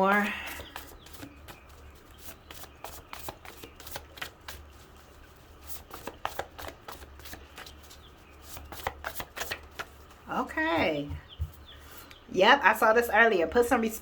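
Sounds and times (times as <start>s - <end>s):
cards being shuffled: 0.5s - 10.2s.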